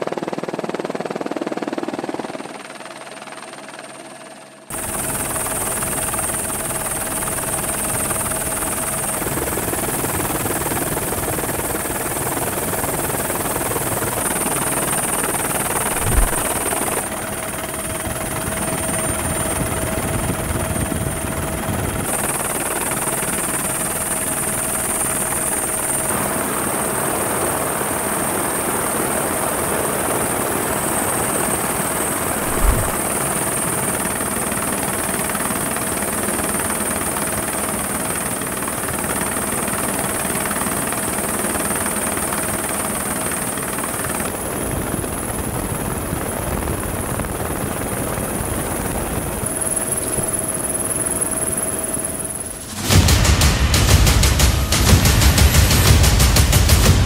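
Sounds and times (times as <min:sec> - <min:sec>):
helicopter engine and rotor: 0:00.0 - 0:57.0
low thump: 0:15.9 - 0:16.6, 0:32.4 - 0:33.1.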